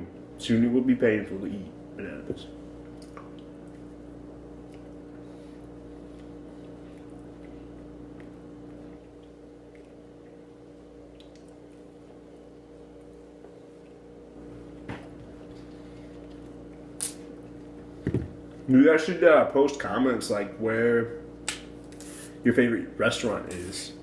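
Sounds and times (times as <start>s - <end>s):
low electrical hum: 0.0s - 24.0s
squishy chewing mouth sounds: 2.7s - 14.3s.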